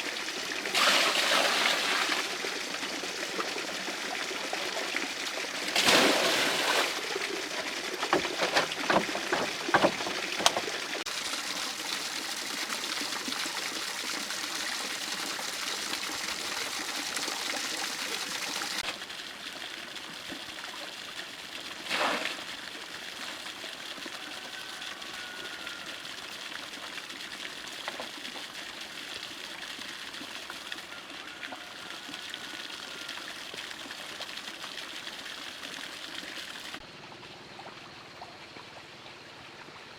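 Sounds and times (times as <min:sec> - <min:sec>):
water running and trickling: 0:00.0 - 0:39.9
knocks: 0:08.0 - 0:10.8.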